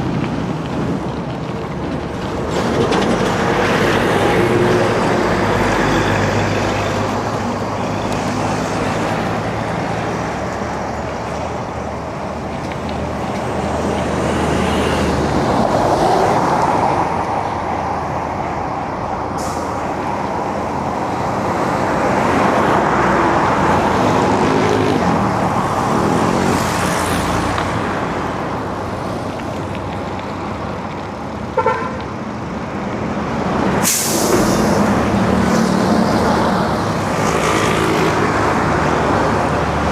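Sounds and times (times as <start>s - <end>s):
passing cars and trucks: 0.0s - 39.9s
tyre and wind noise: 0.0s - 39.9s.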